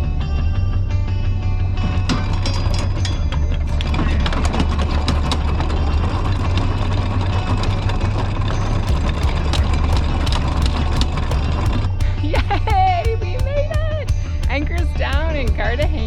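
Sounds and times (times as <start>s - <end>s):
boat engine running: 1.8s - 16.0s
sharp clicks and knocks: 8.9s - 16.0s.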